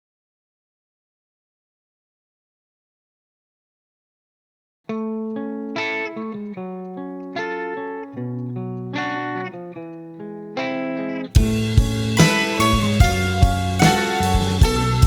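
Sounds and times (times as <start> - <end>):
guitar picking a melody: 4.9 - 15.0.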